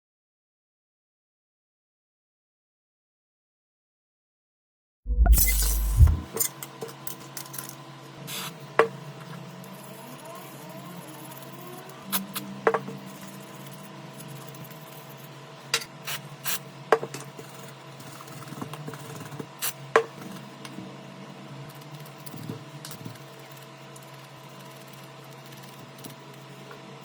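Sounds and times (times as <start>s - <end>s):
steady hum: 5.1s - 6.5s.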